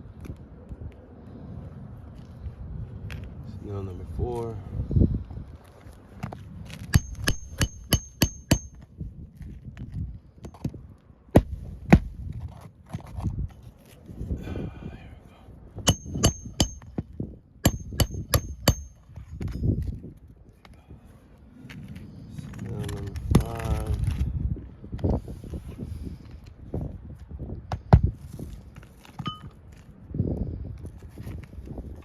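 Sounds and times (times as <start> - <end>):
hammer striking roofing nails: 7.0 - 8.8, 15.9 - 17.0, 17.6 - 19.0.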